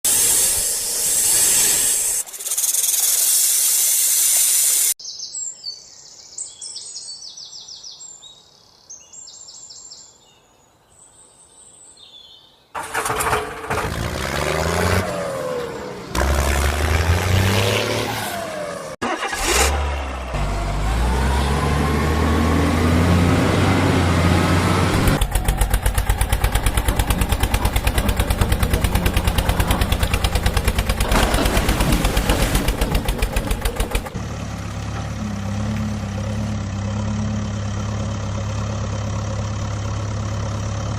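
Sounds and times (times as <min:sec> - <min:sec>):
loud hiss: 0:00.0 - 0:05.0
vehicle engine starting and revving: 0:12.8 - 0:40.9.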